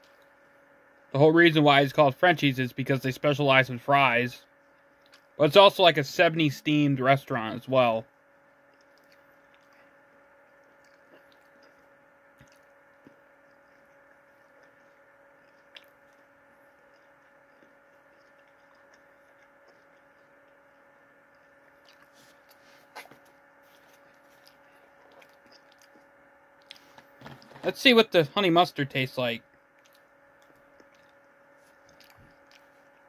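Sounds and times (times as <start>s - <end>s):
faint room hum: 0.0s - 33.0s
person chewing food: 4.6s - 5.4s, 8.4s - 27.6s, 29.5s - 33.0s.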